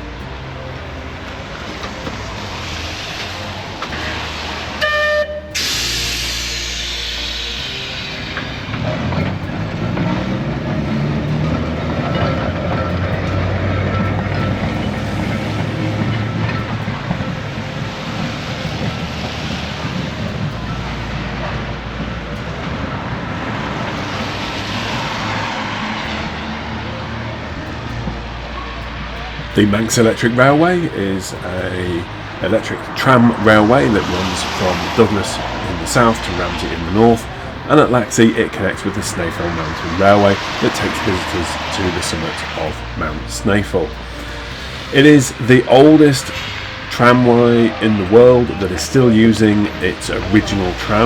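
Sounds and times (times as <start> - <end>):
loud pitched tone: 0.0 - 9.7
electric tram hiss: 0.0 - 51.0
low hum: 0.0 - 51.0.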